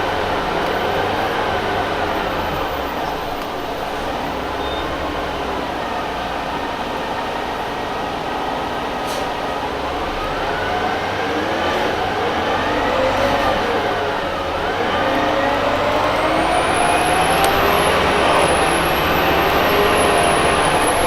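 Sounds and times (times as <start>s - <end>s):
bus drivetrain hum: 0.0s - 21.0s
whine rising in pitch: 10.2s - 21.0s.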